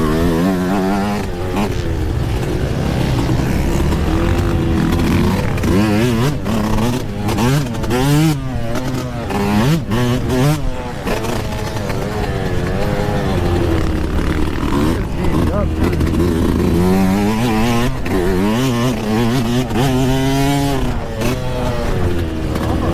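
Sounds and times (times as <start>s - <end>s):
two-stroke engine revving: 0.0s - 22.9s.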